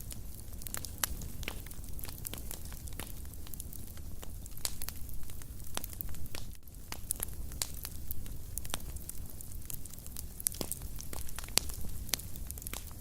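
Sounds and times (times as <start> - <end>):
fire crackling and popping: 0.0 - 13.0
fire rumble: 0.0 - 13.0.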